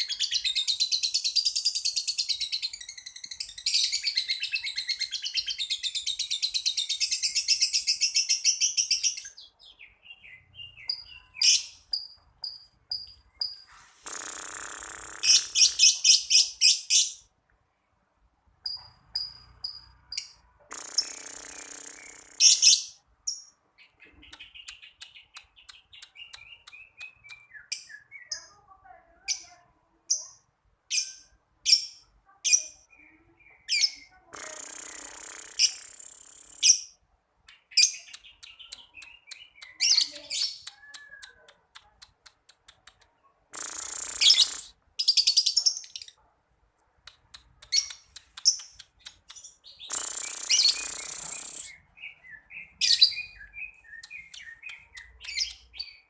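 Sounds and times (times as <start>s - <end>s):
lovebird chirping and squeaking: 0.0s - 17.3s, 18.6s - 46.2s, 47.1s - 56.0s
lovebird harsh chattering trills: 11.4s - 17.2s, 19.2s - 23.0s, 33.7s - 37.0s, 43.5s - 46.2s, 47.4s - 51.8s.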